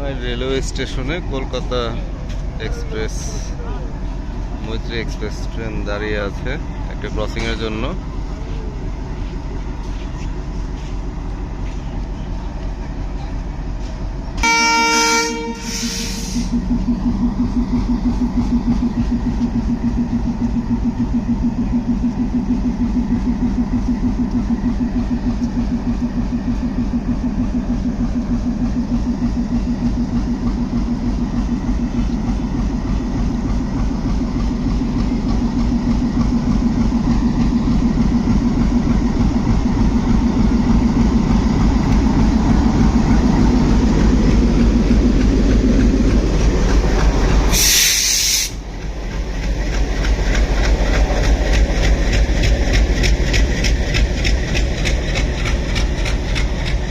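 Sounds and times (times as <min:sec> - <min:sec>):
train engine and wheels rumbling: 0:00.0 - 0:56.9
locomotive horn: 0:14.4 - 0:16.5.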